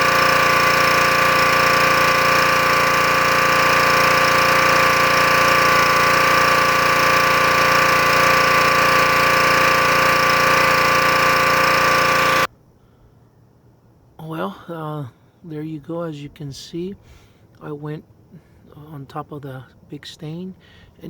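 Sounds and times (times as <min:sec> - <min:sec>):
water spraying hiss: 0:00.0 - 0:03.2
pressure washer engine running: 0:00.0 - 0:12.5.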